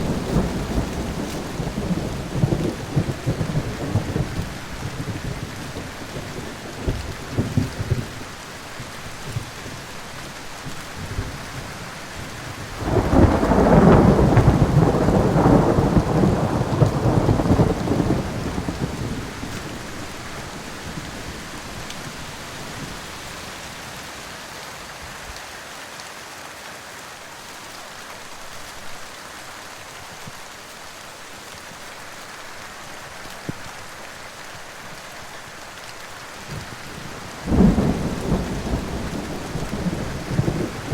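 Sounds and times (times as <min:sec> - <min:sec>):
thunder rolling: 0:00.0 - 0:08.2, 0:12.6 - 0:21.4, 0:36.5 - 0:40.9
steady rain: 0:00.0 - 0:40.9.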